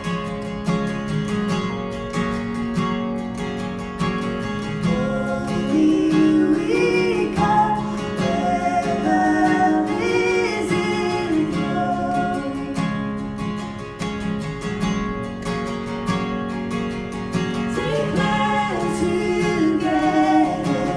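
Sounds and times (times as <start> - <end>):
acoustic guitar strumming: 0.0 - 20.9
person singing: 4.8 - 13.2, 17.7 - 20.9.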